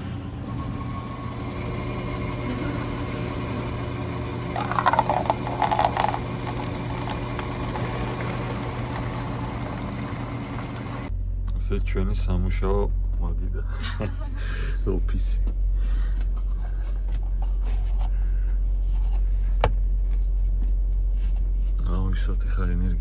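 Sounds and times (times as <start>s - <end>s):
diesel engine idling: 0.0s - 11.4s.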